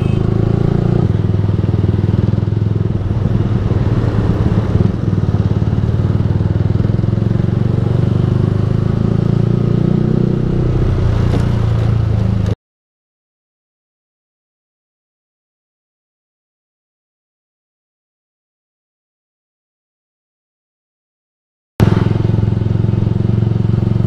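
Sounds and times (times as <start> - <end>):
motorcycle engine running: 0.0 - 12.6, 21.8 - 24.0.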